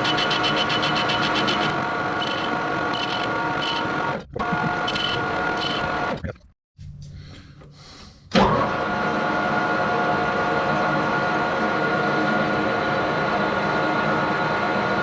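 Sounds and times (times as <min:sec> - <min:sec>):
metal lathe whining: 0:00.0 - 0:06.2.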